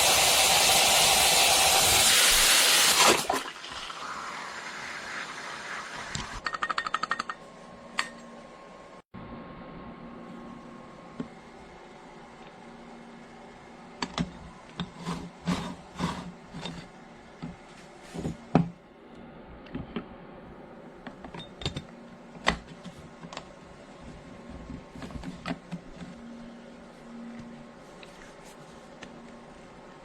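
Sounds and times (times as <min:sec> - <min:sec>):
hard parts clicking and clattering: 0:06.4 - 0:08.2.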